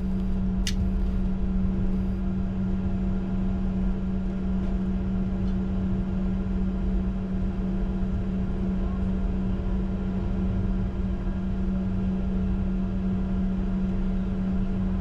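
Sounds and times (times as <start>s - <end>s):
jet engines idling: 0.0s - 2.2s.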